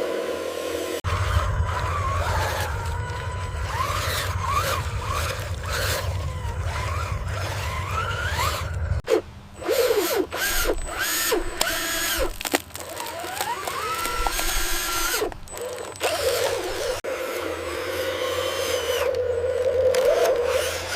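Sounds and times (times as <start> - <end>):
small electric motors whining: 0.0 - 20.9
low rumble: 1.0 - 9.0.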